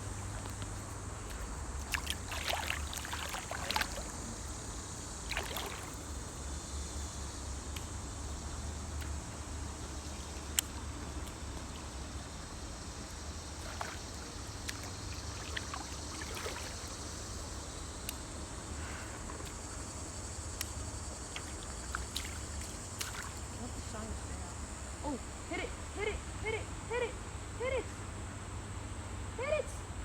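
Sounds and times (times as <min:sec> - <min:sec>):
running water: 0:00.0 - 0:06.4, 0:13.0 - 0:17.6, 0:21.2 - 0:24.3
insects chirping: 0:00.0 - 0:30.0.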